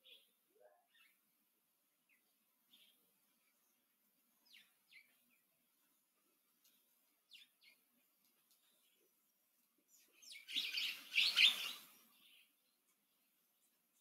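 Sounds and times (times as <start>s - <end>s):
birds calling: 9.9s - 12.7s.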